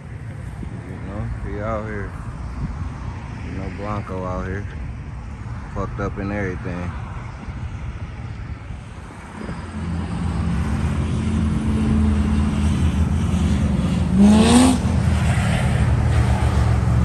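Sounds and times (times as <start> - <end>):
car engine rumbling: 0.0 - 17.0
engine revving: 9.7 - 17.0.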